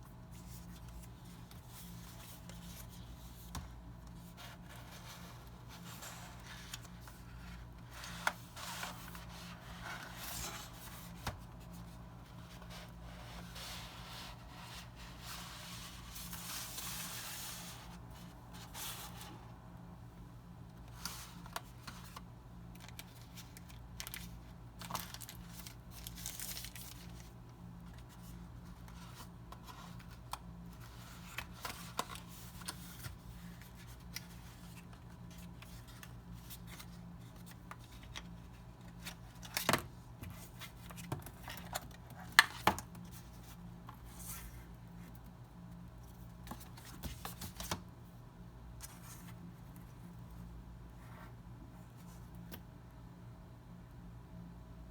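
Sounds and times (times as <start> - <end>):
packaging rustling and tearing: 22.8 - 27.3.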